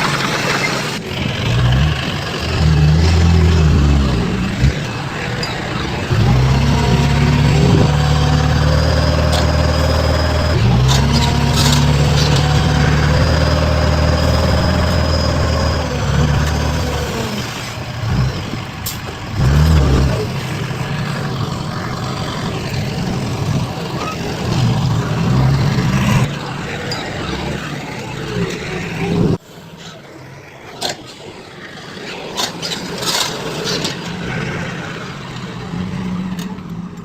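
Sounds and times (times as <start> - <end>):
heavy diesel engine revving: 0.0 - 29.4.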